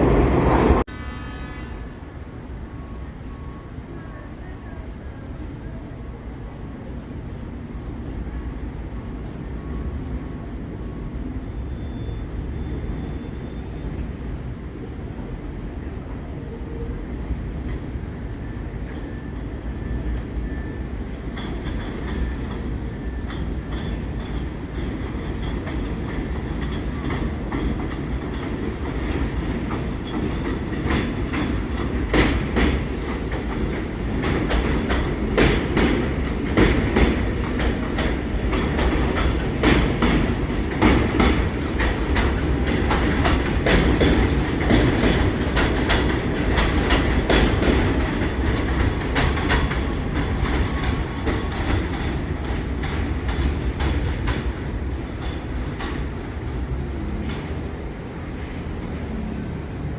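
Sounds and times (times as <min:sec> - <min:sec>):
subway train rumbling on rails: 0:00.0 - 0:59.9
wheels clicking over rail joints: 0:23.3 - 0:57.7.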